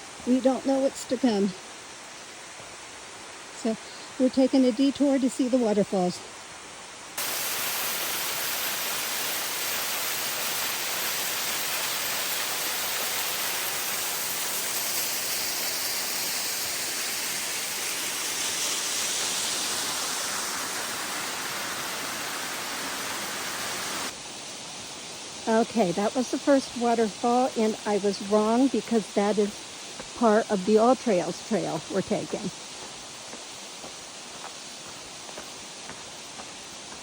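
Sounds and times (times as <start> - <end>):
waterfall rushing: 7.2 - 24.2.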